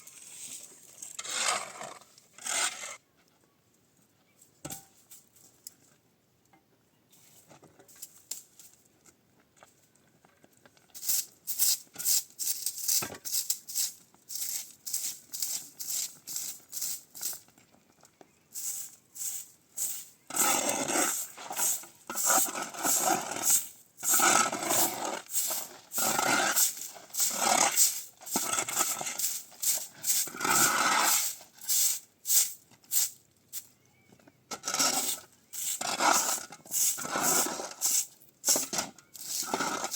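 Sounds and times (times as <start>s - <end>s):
rasping scraping strokes: 1.0s - 3.0s, 18.6s - 31.9s, 34.6s - 39.9s.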